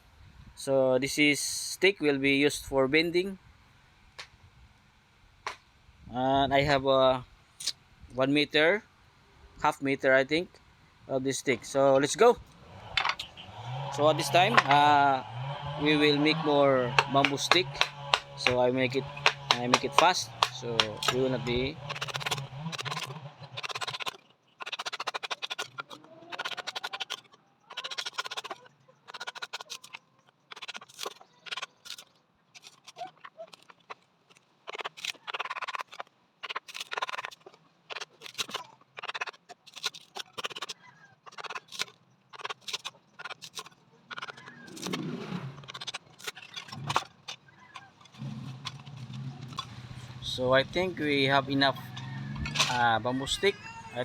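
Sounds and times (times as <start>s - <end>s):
knife chopping bamboo: 14.0s - 15.0s, 16.0s - 32.0s.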